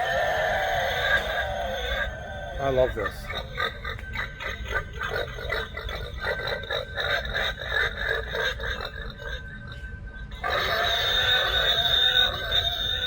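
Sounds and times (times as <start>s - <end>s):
pig sound effect through speaker: 10.4s - 13.0s.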